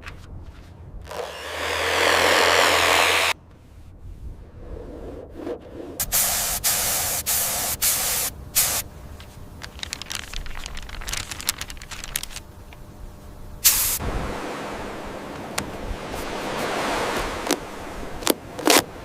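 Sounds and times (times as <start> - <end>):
spray gun hissing: 6.0 - 8.9, 13.6 - 14.0
crackling ticks: 9.2 - 12.9.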